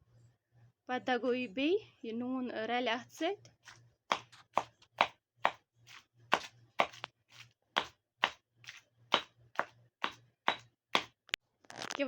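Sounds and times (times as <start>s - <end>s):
meat being pounded: 4.1s - 11.2s.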